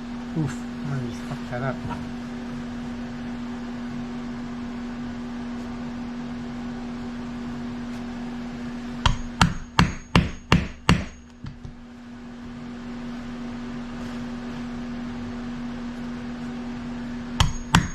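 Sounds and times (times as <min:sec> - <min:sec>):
steady low hum: 0:00.0 - 0:17.9
hammer strikes: 0:09.0 - 0:11.8, 0:17.4 - 0:17.9.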